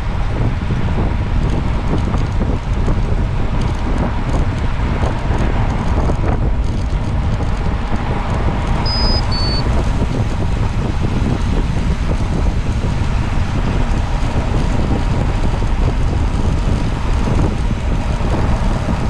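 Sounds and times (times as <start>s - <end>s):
wind buffeting microphone: 0.0s - 19.0s
short high-pitched tones: 8.9s - 9.7s.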